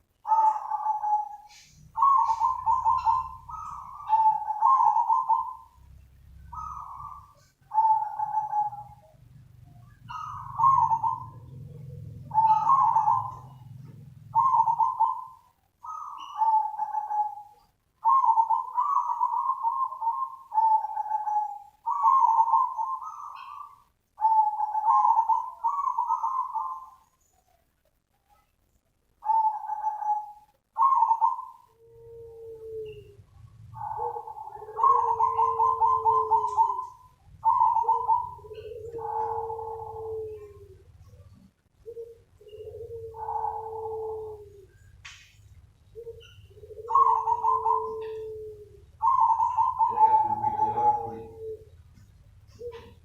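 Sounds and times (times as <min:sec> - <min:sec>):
dove cooing: 0:00.0 - 0:27.6, 0:29.1 - 0:53.0.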